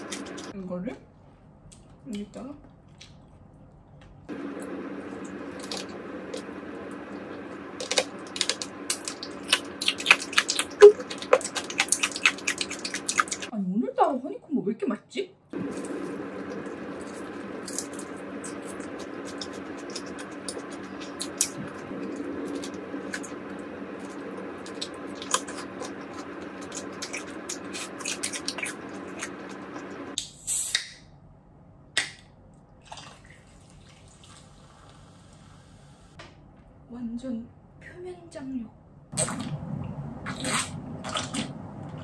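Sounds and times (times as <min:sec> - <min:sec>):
steady hum: 0:00.0 - 0:00.5, 0:04.3 - 0:13.5, 0:15.6 - 0:30.2.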